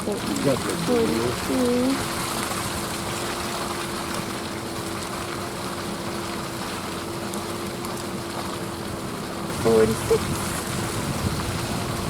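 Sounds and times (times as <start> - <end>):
steady low hum: 0.0 - 12.0
truck road and engine noise: 9.4 - 12.0.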